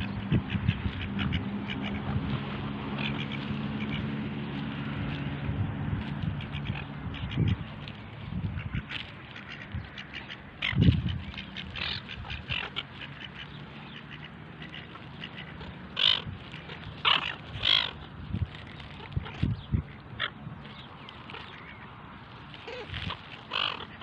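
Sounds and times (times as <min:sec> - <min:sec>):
birds pecking and clicking: 0:00.0 - 0:24.0
loud bird calls: 0:06.4 - 0:24.0.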